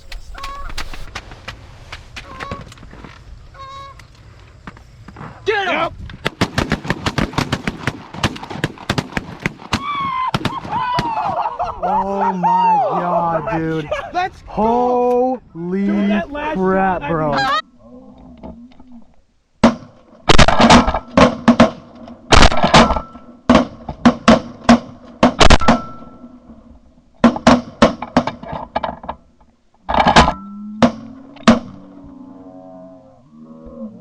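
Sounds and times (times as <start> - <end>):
faint geese honking: 0.0 - 1.1, 2.2 - 5.4
shotgun blasts: 6.2 - 11.2, 19.7 - 21.3, 22.3 - 23.1, 25.4 - 26.1.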